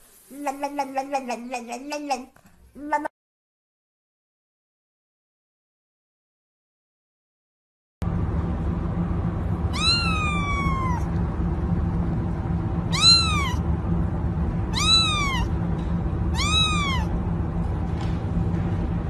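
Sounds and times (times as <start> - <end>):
steady low rumble: 8.0 - 19.0
cat meowing: 9.7 - 11.1, 12.9 - 13.6, 14.7 - 15.5, 16.3 - 17.1.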